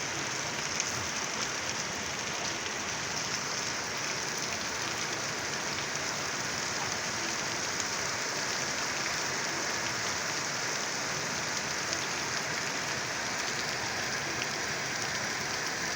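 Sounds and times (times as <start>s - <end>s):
heavy rain pouring: 0.0s - 15.9s.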